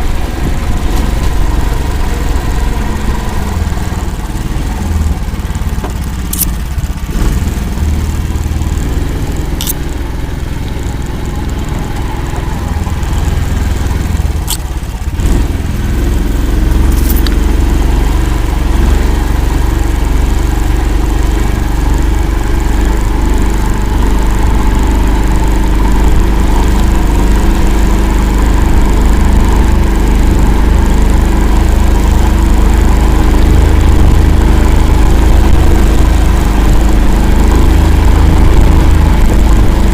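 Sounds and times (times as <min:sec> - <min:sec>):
vehicle engine running: 0:00.0 - 0:39.9
sharp clicks or knocks: 0:05.8 - 0:06.6.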